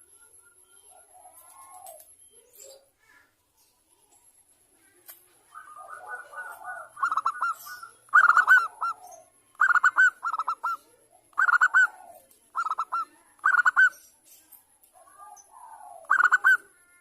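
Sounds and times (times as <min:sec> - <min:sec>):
dove cooing: 0:00.7 - 0:02.9, 0:05.4 - 0:14.0, 0:14.9 - 0:17.0
dove trilling: 0:05.4 - 0:14.2, 0:15.0 - 0:17.0.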